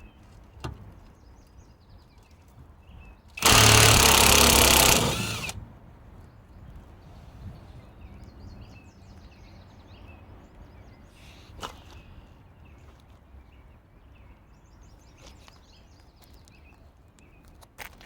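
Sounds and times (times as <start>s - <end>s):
small birds chirping: 6.5s - 17.6s.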